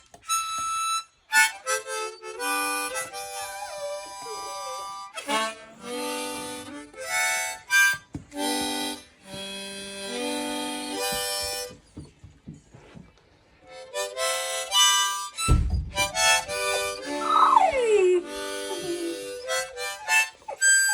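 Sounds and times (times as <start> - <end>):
harmonica playing chords: 0.2 - 11.8, 13.6 - 20.9
puppy howling: 3.2 - 5.2, 16.5 - 20.9
dull thump: 15.4 - 16.9.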